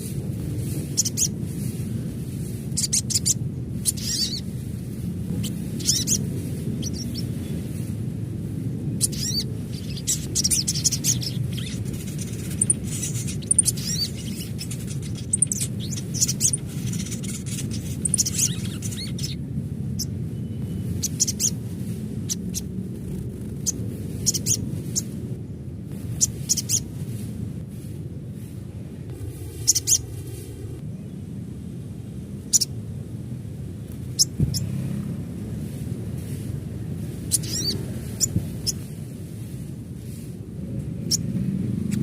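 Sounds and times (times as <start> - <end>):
sunbird chirps and trills: 0.0 - 8.0, 8.9 - 22.8, 23.5 - 25.2, 26.0 - 27.0, 29.5 - 30.2, 32.4 - 32.8, 34.0 - 40.3
steady low hum: 0.0 - 42.0.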